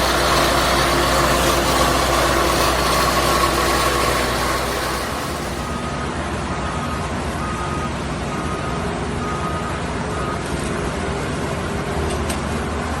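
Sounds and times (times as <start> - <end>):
truck engine running: 0.0 - 13.0
beeping alarm: 3.8 - 10.6.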